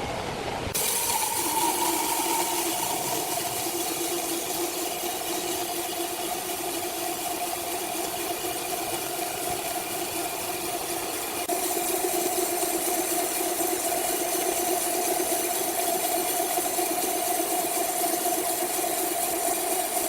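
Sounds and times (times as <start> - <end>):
sawmill machinery humming: 0.0 - 15.7.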